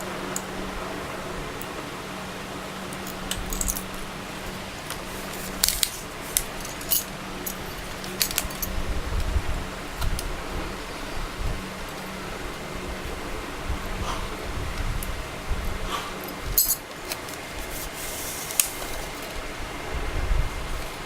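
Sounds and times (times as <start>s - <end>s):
low hum: 0.0s - 16.9s
small metallic clinks: 3.0s - 4.0s, 5.6s - 8.8s, 16.2s - 17.3s.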